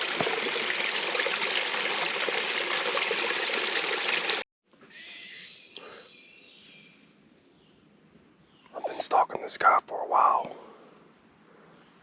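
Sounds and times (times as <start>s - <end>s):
creek trickling: 0.0s - 4.4s.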